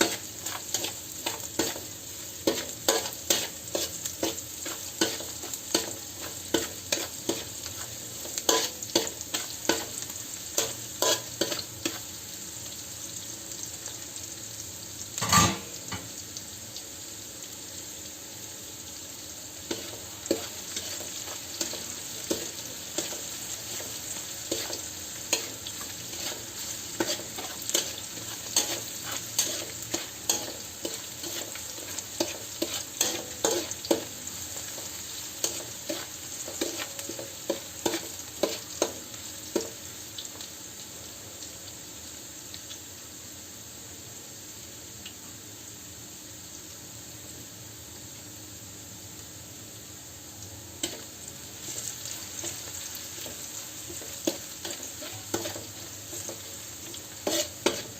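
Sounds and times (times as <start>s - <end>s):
spatula scraping a pan: 0.0s - 12.1s, 15.2s - 16.0s, 19.7s - 38.9s, 51.6s - 57.9s
chicken sizzling in a pan: 0.0s - 57.9s.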